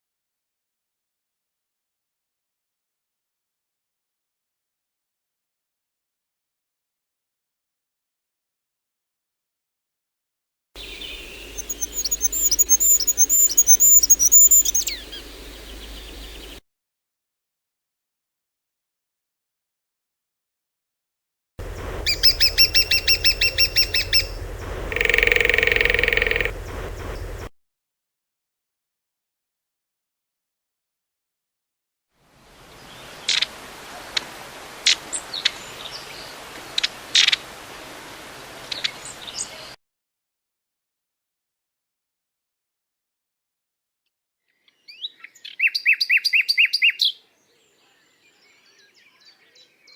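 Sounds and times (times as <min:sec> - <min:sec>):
background hiss: 0:10.8 - 0:16.6, 0:21.6 - 0:27.5
small bird singing: 0:10.8 - 0:16.6, 0:21.6 - 0:27.5, 0:44.5 - 0:49.9
thin high bird notes: 0:22.0 - 0:26.6.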